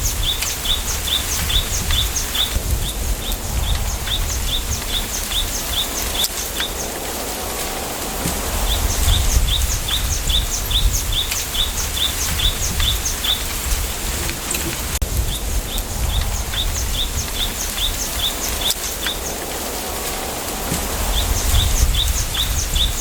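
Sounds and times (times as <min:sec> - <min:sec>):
small bird chirping: 0:00.0 - 0:07.0, 0:08.6 - 0:13.8, 0:15.2 - 0:19.4
low rumble of wind: 0:00.0 - 0:23.0.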